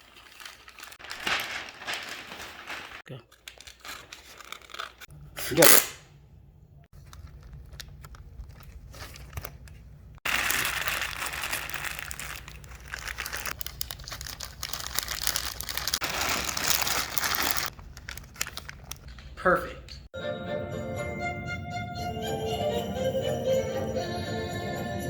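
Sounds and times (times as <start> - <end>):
crinkling and crumpling: 0.0 - 5.1, 6.9 - 19.4.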